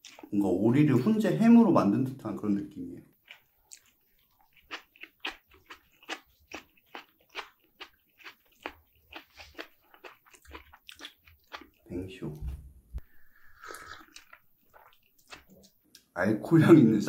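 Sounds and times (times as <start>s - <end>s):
wet chewing clicks: 0.0s - 0.4s, 3.1s - 11.9s, 13.0s - 16.1s.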